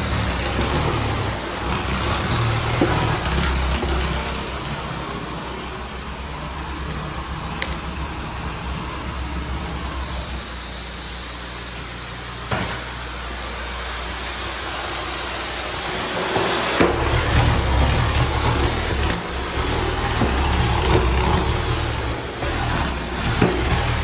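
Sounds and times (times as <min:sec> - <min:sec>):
cleaning machine drone with hiss: 0:00.0 - 0:24.0
click: 0:07.2 - 0:07.8.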